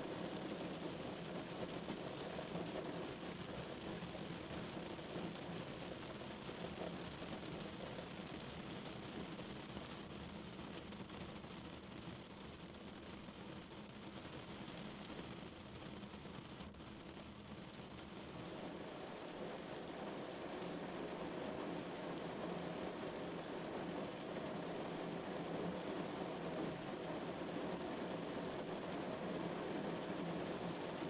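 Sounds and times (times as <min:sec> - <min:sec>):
rain falling on a car: 0:00.0 - 0:31.0.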